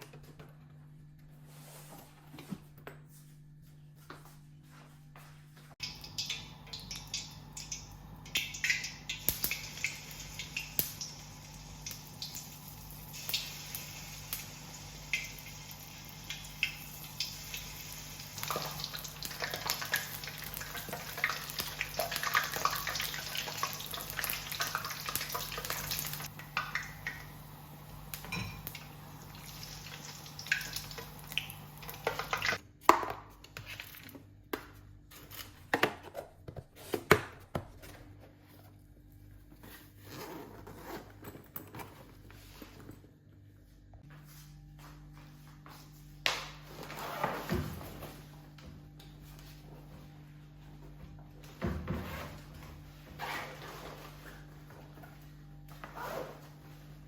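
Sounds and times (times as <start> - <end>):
water running: 5.8 - 32.6
dishes and cutlery clinking: 28.3 - 28.8.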